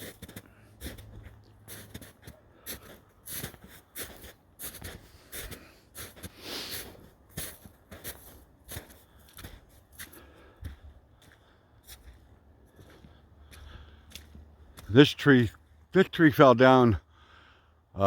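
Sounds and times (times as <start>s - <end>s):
footsteps on rough ground: 0.0s - 16.0s.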